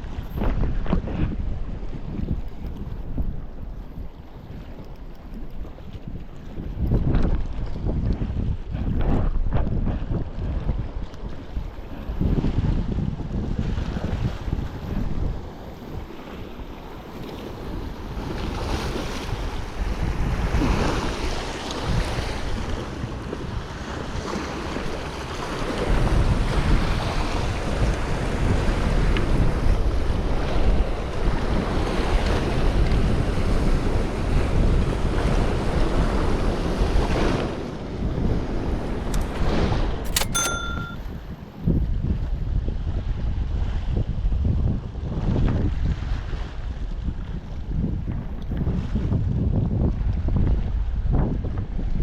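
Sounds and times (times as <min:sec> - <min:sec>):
wind buffeting the microphone: 0:00.0 - 0:40.4, 0:41.0 - 0:52.0
sea waves: 0:13.6 - 0:41.1.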